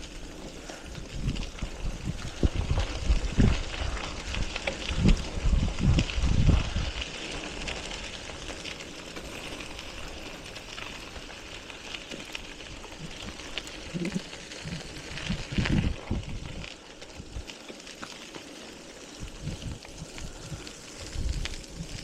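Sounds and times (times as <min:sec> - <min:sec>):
bicycle riding hiss: 0:00.0 - 0:22.0
wind gusting on microphone: 0:00.7 - 0:08.5, 0:12.7 - 0:17.5, 0:19.2 - 0:22.0.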